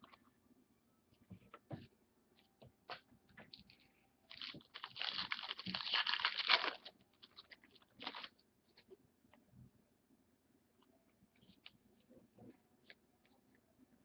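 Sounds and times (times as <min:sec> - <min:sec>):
foil wrapper crinkling: 0:04.3 - 0:08.3.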